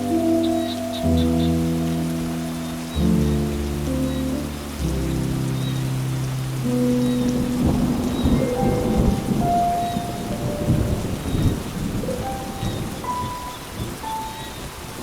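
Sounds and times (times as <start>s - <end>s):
heavy rain: 0.0s - 15.0s
rolling thunder: 0.0s - 15.0s.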